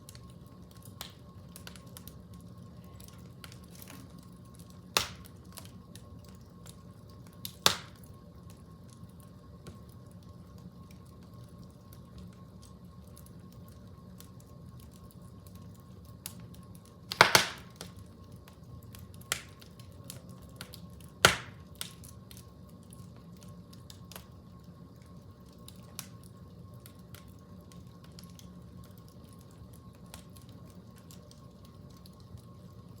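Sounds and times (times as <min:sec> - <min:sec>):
wood fire crackling: 0:00.0 - 0:33.0
loud fire pops: 0:04.8 - 0:05.7, 0:07.4 - 0:08.1, 0:17.1 - 0:18.0, 0:20.6 - 0:22.1.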